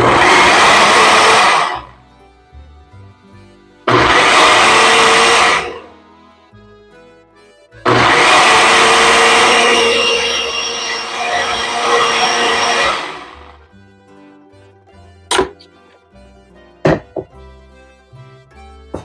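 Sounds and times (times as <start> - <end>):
blender pulsing: 0.0 - 1.9, 3.9 - 5.9, 7.9 - 13.6.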